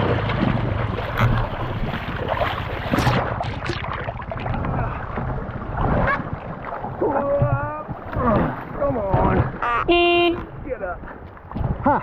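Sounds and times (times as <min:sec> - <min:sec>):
wind buffeting microphone: 0:04.2 - 0:12.0.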